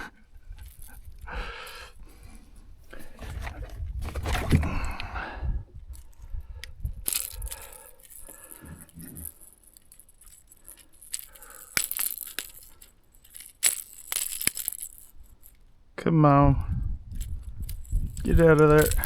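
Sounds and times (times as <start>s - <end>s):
fishing tackle clicking and rattling: 0.0s - 2.0s, 5.8s - 15.8s, 17.1s - 19.0s.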